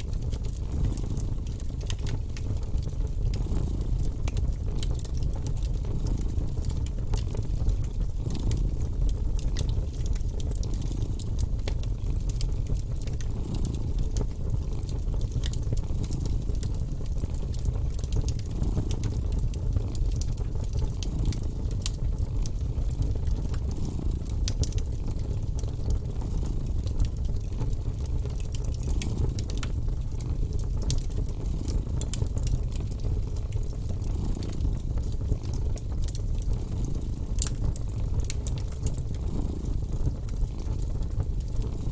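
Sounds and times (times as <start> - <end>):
wood fire crackling: 0.0 - 41.9
cat purring: 39.2 - 39.6.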